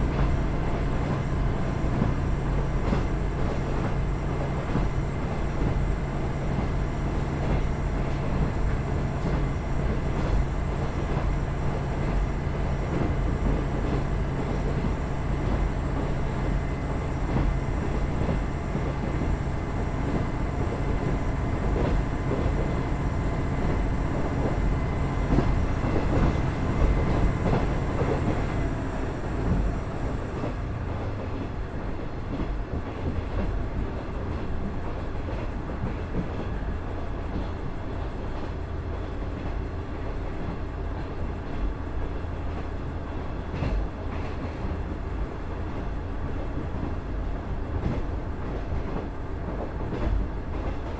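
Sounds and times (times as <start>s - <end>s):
diesel engine running: 0.0s - 31.3s
train wheel and rail noise: 0.0s - 50.9s.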